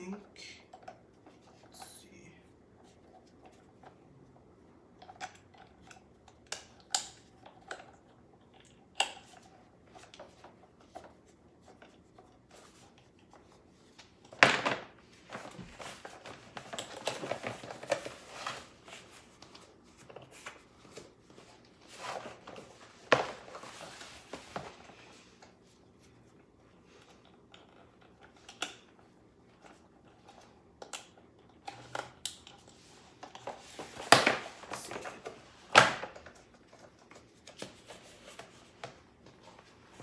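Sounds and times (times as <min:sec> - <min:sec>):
packaging rustling: 0:14.4 - 0:25.3.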